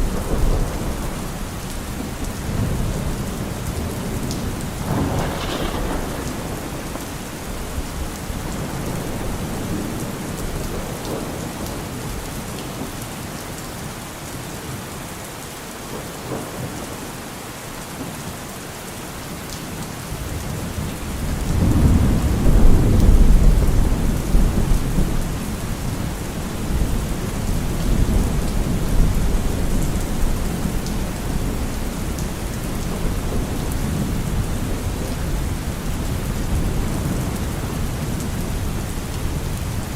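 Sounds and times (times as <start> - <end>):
low roll of thunder: 0.0 - 12.2, 20.6 - 39.9
steady rain falling: 0.0 - 39.9.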